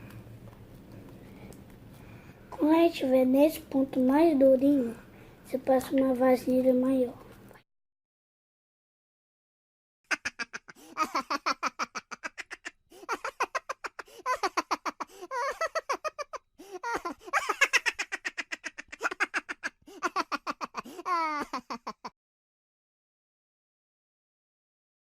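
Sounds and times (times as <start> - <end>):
child laughing and giggling: 10.1 - 22.2
child squealing: 19.9 - 21.7.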